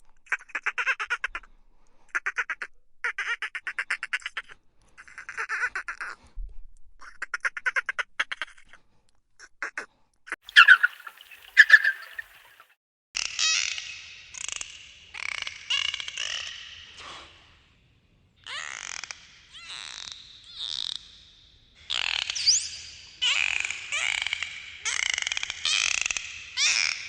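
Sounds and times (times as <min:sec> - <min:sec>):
duck harsh squawks: 0:10.5 - 0:12.6
duck quacking rapidly: 0:10.5 - 0:12.6.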